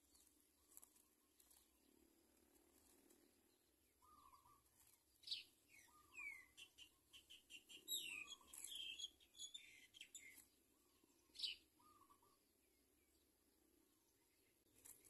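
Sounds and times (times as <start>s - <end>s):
birds chirping: 2.9s - 15.0s
softer lower bird call: 4.0s - 4.6s, 5.2s - 10.4s.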